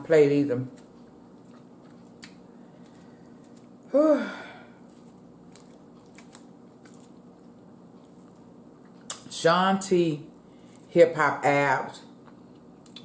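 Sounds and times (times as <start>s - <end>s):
woman chewing: 0.8s - 3.9s, 4.8s - 9.2s
hummed mmm: 3.5s - 4.9s.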